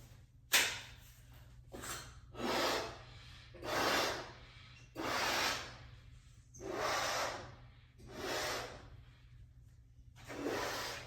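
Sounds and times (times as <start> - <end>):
puffs of air blowing up balloon: 1.7 - 9.2, 10.2 - 11.0.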